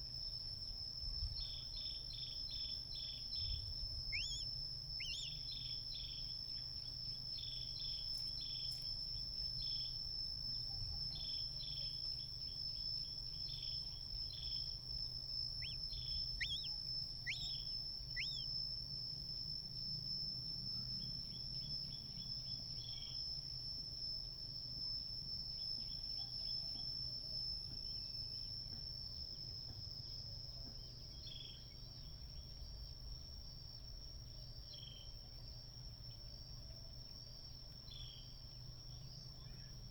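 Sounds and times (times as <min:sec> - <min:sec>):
high-pitched insect trill: 0:00.0 - 0:39.9
upward-sweeping bird calls: 0:04.1 - 0:05.4, 0:15.6 - 0:18.5
short repeated chirps: 0:16.4 - 0:17.6, 0:18.2 - 0:18.4.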